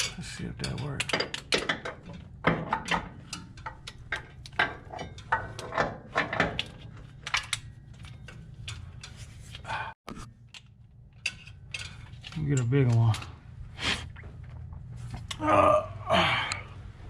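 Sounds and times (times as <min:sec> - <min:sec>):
hand tools clinking on metal: 0:00.0 - 0:09.2, 0:10.6 - 0:13.4.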